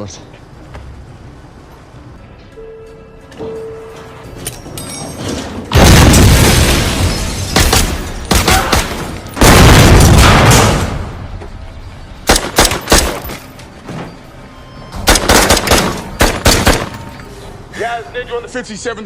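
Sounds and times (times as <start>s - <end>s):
heavy explosion: 5.7s - 8.0s, 9.4s - 11.2s
automatic gunfire: 12.3s - 13.2s, 15.1s - 17.0s.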